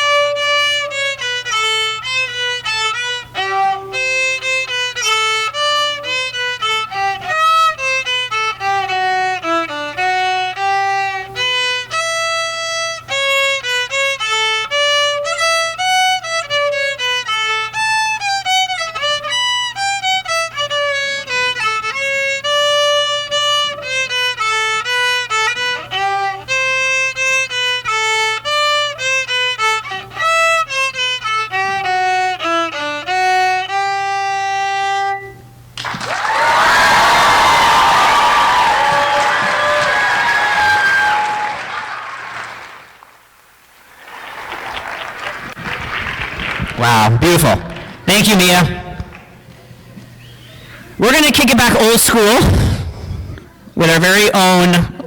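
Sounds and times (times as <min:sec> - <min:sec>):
solo violin melody: 0:00.0 - 0:35.8.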